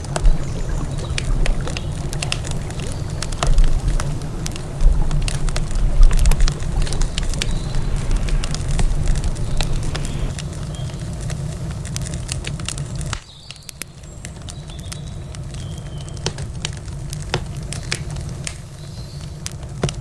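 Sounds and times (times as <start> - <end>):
low rumble: 0.0 - 10.6
campfire crackling and popping: 0.0 - 20.0.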